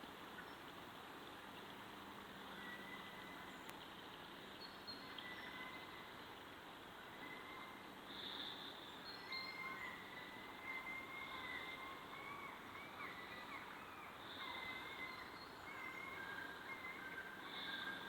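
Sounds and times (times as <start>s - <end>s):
steady hiss: 0.0s - 18.0s
wavering animal calls: 9.3s - 18.0s.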